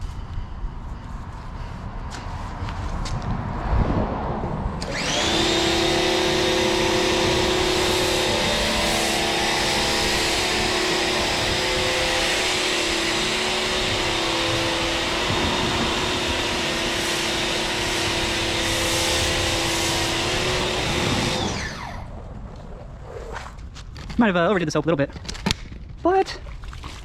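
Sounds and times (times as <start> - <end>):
motor winding down: 4.8 - 22.1
pressure washer spraying: 4.9 - 21.8.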